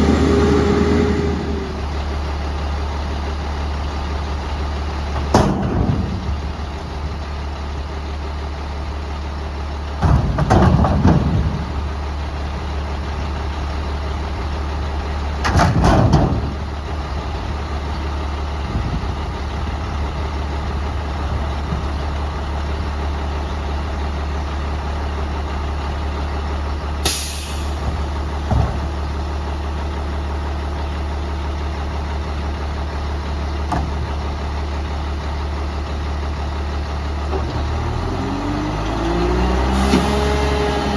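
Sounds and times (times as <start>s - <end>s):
garbage truck engine idling: 0.0s - 39.6s
air brake hiss: 27.0s - 27.8s.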